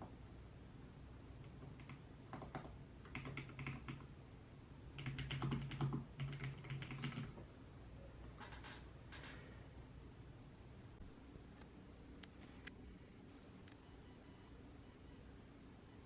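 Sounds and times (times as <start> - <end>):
typing on computer keyboard: 1.4 - 4.1, 4.9 - 7.4, 8.4 - 9.4.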